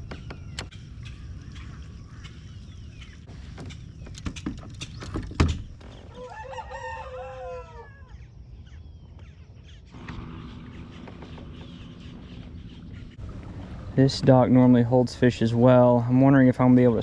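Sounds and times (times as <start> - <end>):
sharp knocks and clicks: 3.6 - 5.8
rooster crowing: 6.1 - 8.2.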